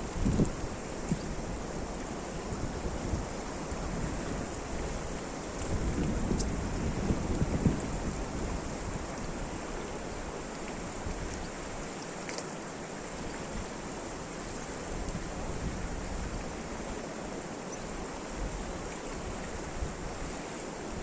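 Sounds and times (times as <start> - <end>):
steady rain hiss: 0.0 - 21.0.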